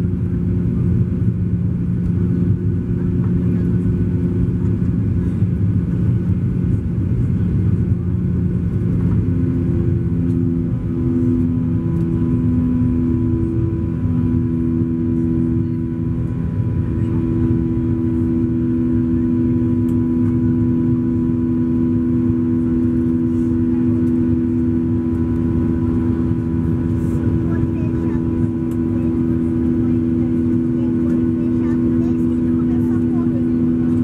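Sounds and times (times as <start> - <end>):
airplane cabin engine drone: 0.0 - 34.0.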